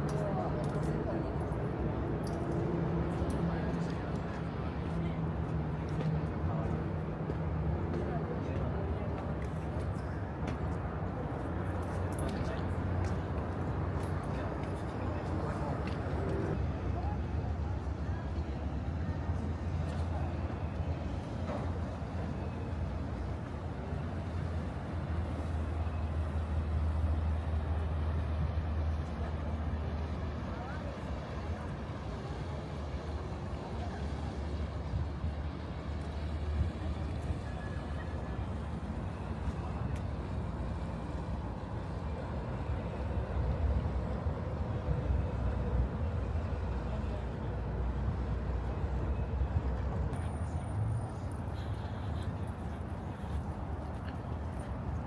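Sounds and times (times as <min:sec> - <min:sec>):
outdoor city noise: 0:00.0 - 0:55.0.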